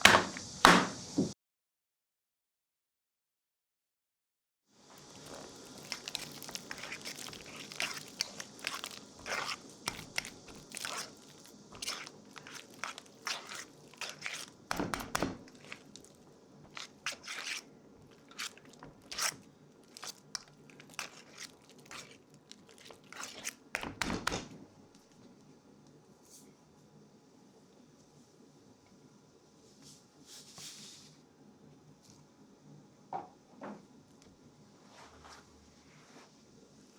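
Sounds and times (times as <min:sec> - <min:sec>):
crunching and crinkling ingredients: 0:04.9 - 0:25.4.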